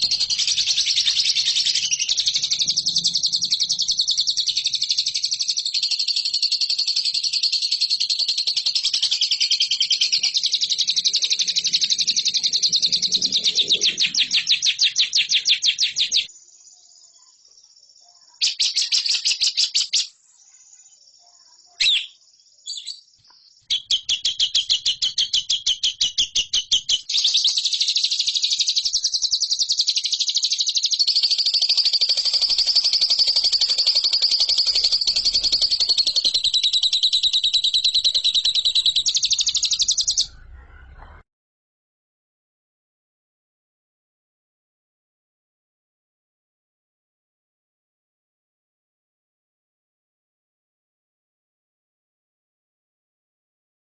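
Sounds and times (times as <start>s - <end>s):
lovebird chattering trill: 0.0s - 16.3s, 18.3s - 20.1s, 21.7s - 23.0s, 23.7s - 40.9s.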